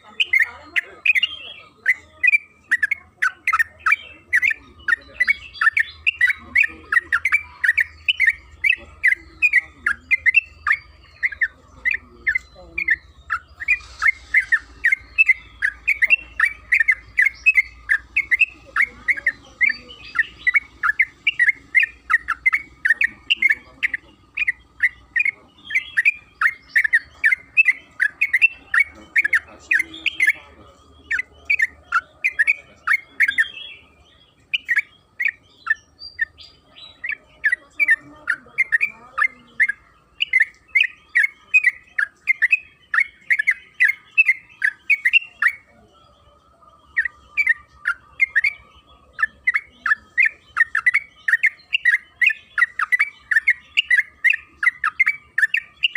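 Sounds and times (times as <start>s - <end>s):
bulbul chirping rapidly: 0.0s - 33.8s.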